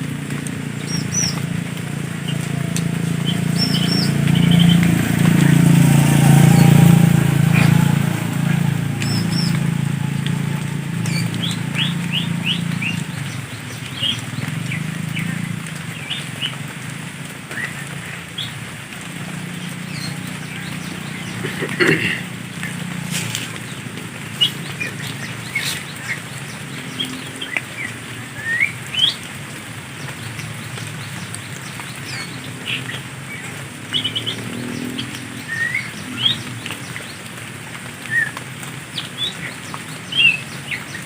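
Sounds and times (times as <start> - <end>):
small birds chirping: 0.0 - 16.7, 17.5 - 29.3, 38.0 - 41.0
low hum: 0.4 - 13.6.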